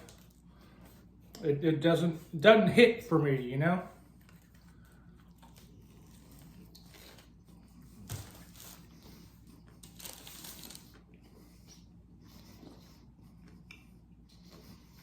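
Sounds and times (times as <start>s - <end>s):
person eating crunchy sandwich: 5.2s - 11.1s.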